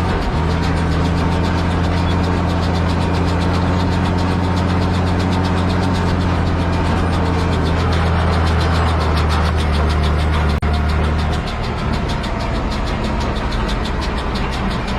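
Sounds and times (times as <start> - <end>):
tractor diesel engine running: 0.0 - 14.9.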